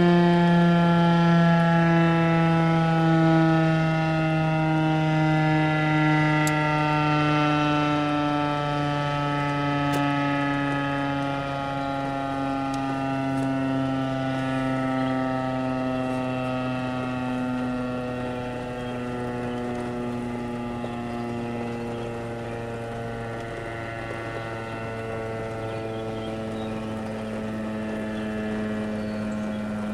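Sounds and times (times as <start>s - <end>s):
warning siren winding down: 0.0s - 29.9s.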